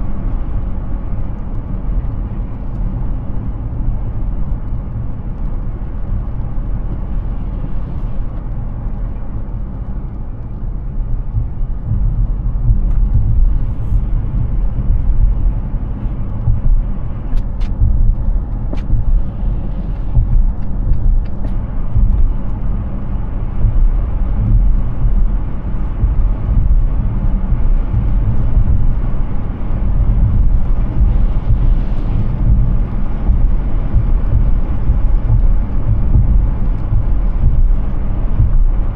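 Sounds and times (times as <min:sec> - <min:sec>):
tyre and road noise: 0:00.0 - 0:38.9.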